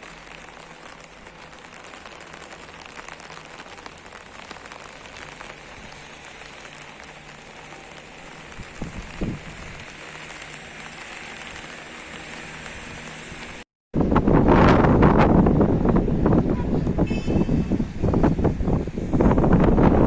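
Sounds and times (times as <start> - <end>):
rain on hard surfaces: 0.0 - 13.7, 17.7 - 20.0.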